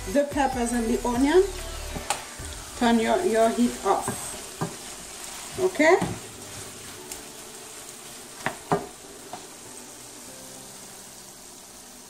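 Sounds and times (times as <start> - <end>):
food sizzling in a frying pan: 0.0 - 12.0
wooden spoon stirring: 1.9 - 10.2.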